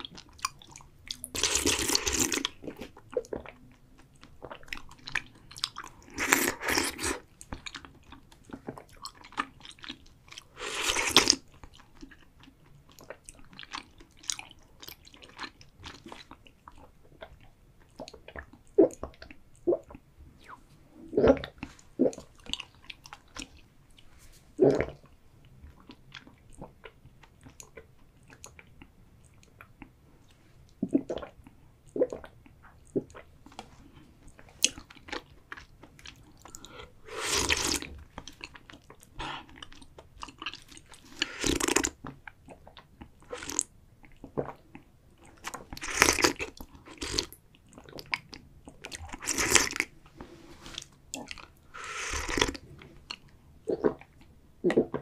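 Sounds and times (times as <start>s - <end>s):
chewing tapioca pearls: 0.0s - 55.0s
slurping milk tea: 37.0s - 37.9s, 41.1s - 41.9s, 51.7s - 52.7s.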